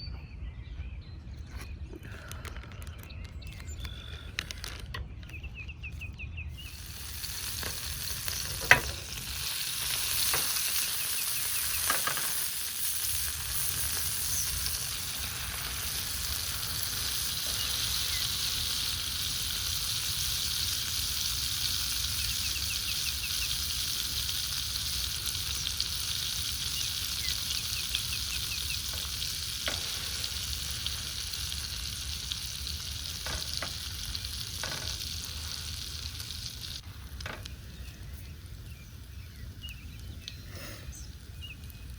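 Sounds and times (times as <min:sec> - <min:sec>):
food sizzling in a hot pan: 0:06.6 - 0:37.5.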